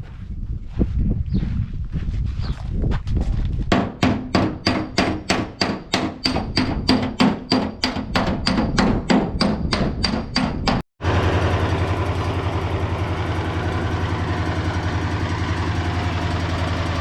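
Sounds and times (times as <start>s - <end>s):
hammer beating sheet metal: 3.7s - 10.8s.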